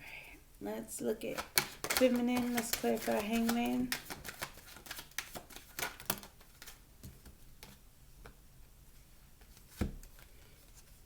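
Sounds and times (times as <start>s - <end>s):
cards being shuffled: 1.3s - 7.8s.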